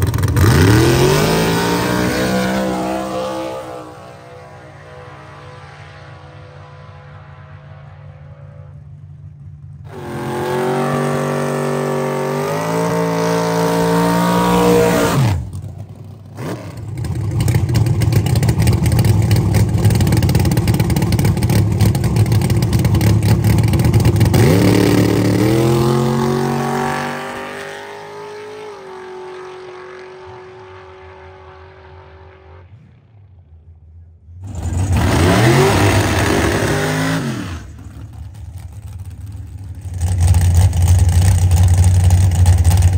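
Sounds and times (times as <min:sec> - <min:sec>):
second engine revving: 0:00.0 - 0:08.9, 0:09.9 - 0:15.6, 0:20.6 - 0:33.0, 0:34.4 - 0:38.2
race car engine revving: 0:00.0 - 0:33.7, 0:34.4 - 0:42.9.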